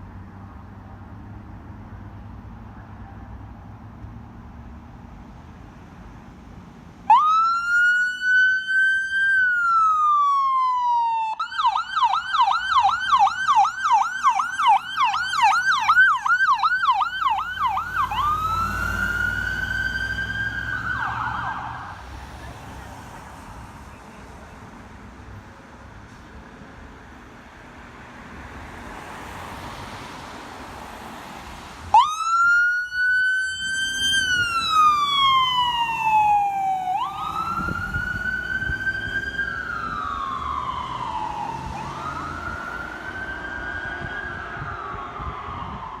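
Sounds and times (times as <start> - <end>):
emergency vehicle siren wailing: 7.0 - 23.2, 31.9 - 46.0.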